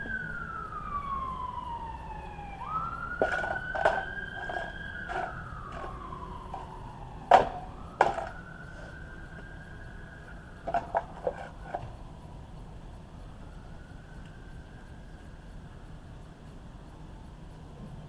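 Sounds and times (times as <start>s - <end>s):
siren wailing: 0.0s - 11.8s
sharp knocks: 3.2s - 6.7s, 7.3s - 8.4s.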